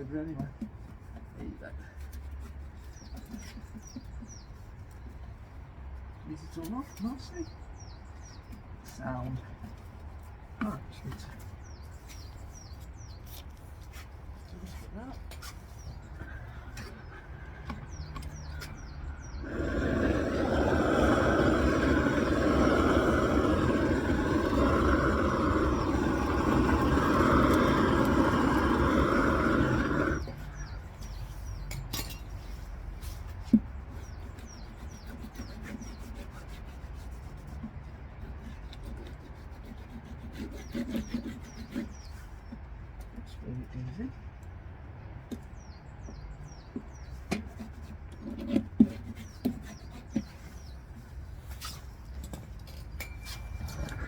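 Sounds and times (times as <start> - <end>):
faint birds chirping: 0.0 - 54.0
gas torch hissing: 19.4 - 30.4.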